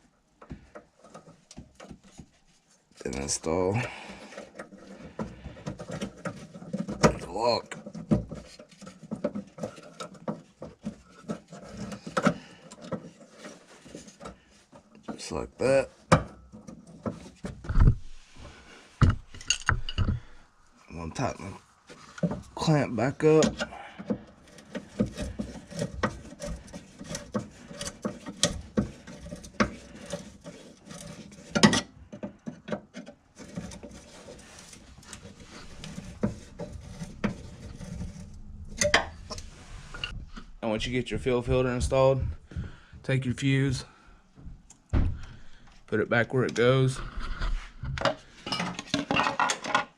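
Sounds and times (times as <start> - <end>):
screwdriver scraping and clicking metal: 7.8 - 15.1, 23.3 - 40.2.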